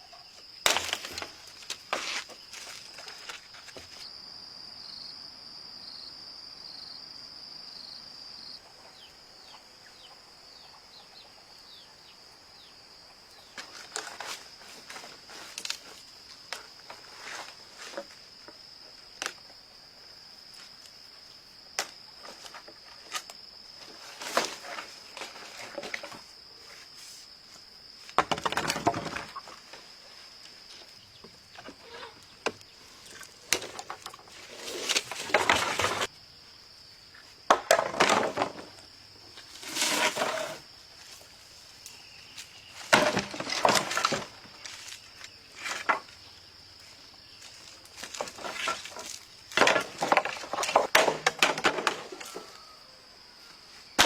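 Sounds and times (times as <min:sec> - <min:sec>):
wood knocking and clattering: 0:28.2 - 0:29.6, 0:37.5 - 0:38.7, 0:48.1 - 0:52.5
rough crackling scraping: 0:33.7 - 0:36.1, 0:39.5 - 0:40.6.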